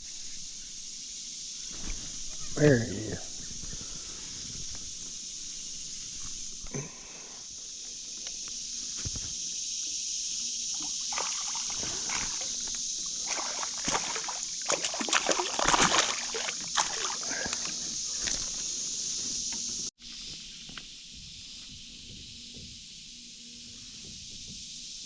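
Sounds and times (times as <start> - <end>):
steady high hiss: 0.0 - 25.0
water splashing and sloshing: 10.7 - 18.6.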